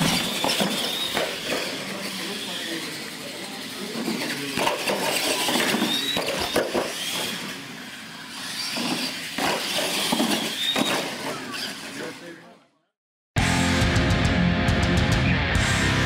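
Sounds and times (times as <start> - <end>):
tyre noise on concrete: 0.0 - 2.3, 8.4 - 12.1
toy truck motor whine: 0.0 - 12.3.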